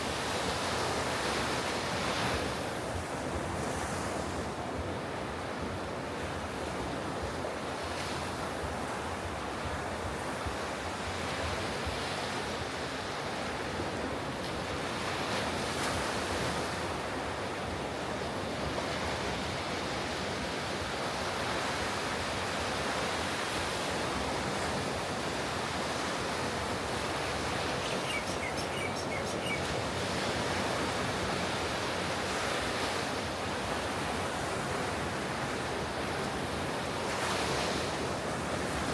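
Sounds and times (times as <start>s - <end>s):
ocean waves breaking: 18.4s - 38.9s.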